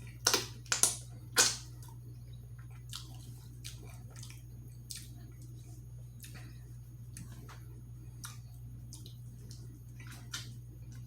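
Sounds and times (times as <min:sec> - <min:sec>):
low electrical hum: 0:00.0 - 0:11.0
person chewing: 0:02.6 - 0:11.0.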